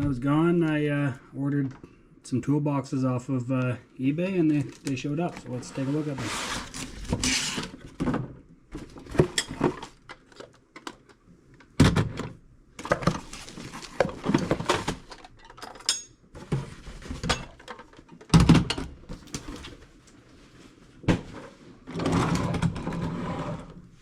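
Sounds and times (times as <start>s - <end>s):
metal toolboxes clunking and rattling: 11.7s - 19.8s.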